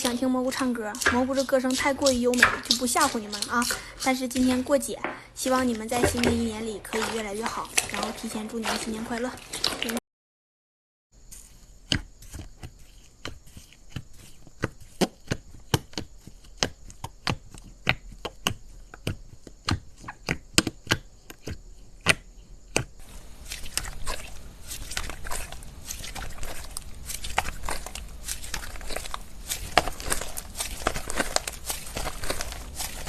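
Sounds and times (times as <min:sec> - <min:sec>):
slime clicking and crackling: 0:00.0 - 0:04.8, 0:11.9 - 0:33.0.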